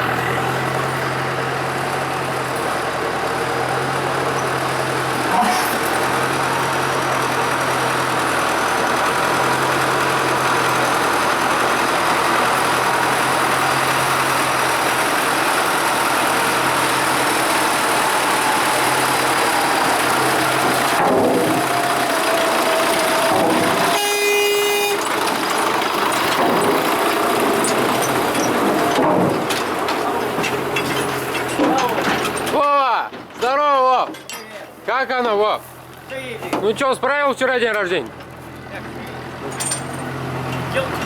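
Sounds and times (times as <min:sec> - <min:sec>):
diesel engine idling: 0:00.0 - 0:34.0, 0:34.6 - 0:41.0
vehicle horn: 0:23.3 - 0:25.2.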